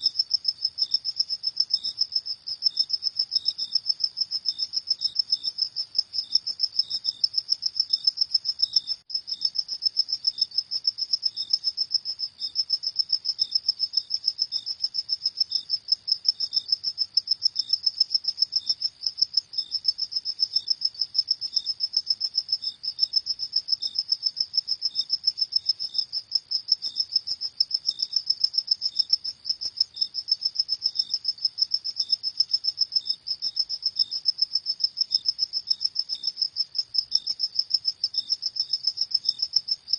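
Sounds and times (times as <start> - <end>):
crickets chirping rapidly: 0.0 - 39.9
low-pitched cricket chirp: 0.0 - 39.9.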